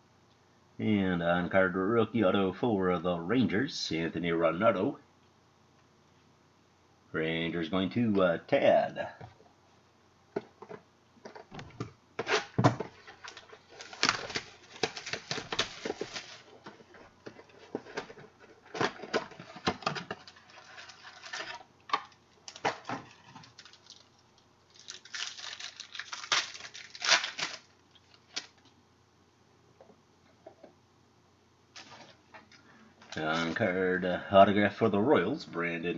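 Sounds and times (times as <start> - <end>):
cards and plastic packaging rustling: 12.2 - 28.8, 31.7 - 33.8.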